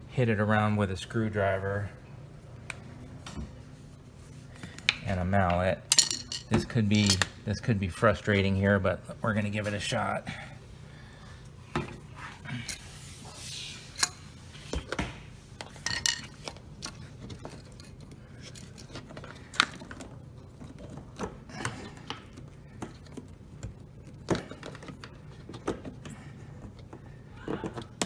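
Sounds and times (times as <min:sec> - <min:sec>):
metal parts clinking into place: 0:05.9 - 0:07.3.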